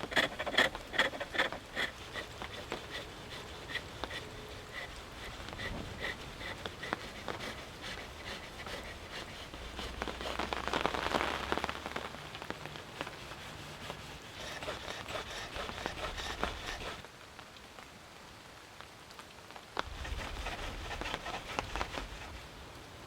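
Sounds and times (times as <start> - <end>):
turning tool scraping wood: 0.0 - 17.0, 19.9 - 22.4.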